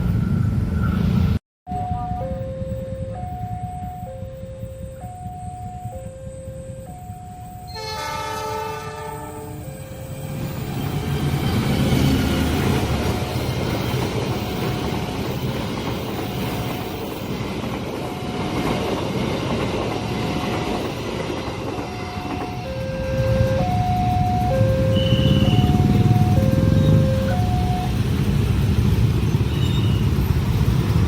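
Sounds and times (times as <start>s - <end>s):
level crossing two-note alarm: 1.7s - 8.3s, 21.9s - 28.0s
train wheels rumbling on rails: 4.8s - 31.0s
train horn: 7.7s - 10.1s, 21.8s - 23.7s, 24.7s - 27.5s.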